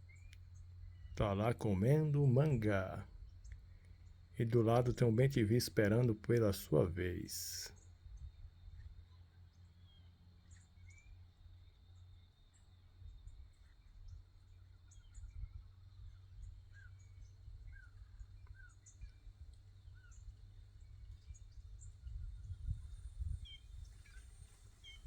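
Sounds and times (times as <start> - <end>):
birds chirping: 0.6 - 7.9.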